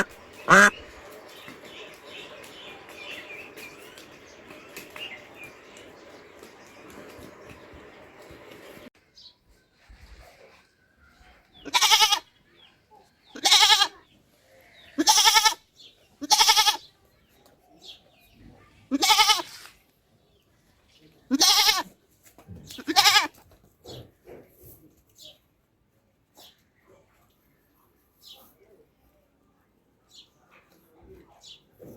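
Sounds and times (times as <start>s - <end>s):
goat bleating: 0.0s - 0.8s, 11.6s - 12.2s, 13.4s - 13.9s, 15.0s - 15.6s, 16.2s - 16.8s, 18.9s - 19.7s, 21.3s - 21.9s, 22.8s - 23.4s.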